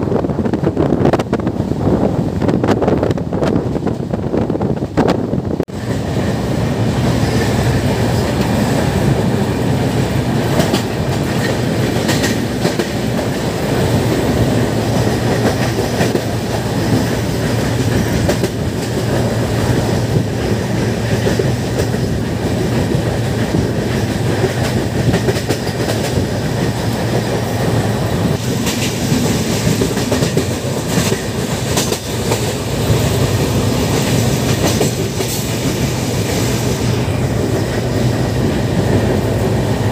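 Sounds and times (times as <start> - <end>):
train wheels rumbling on rails: 0.0 - 39.9
wheels clicking over rail joints: 8.0 - 27.6, 28.2 - 36.4.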